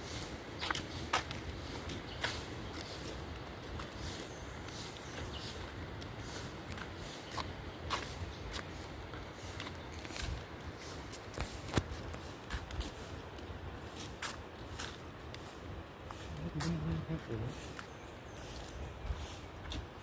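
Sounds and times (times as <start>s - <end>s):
footsteps and shuffling: 0.0s - 20.0s.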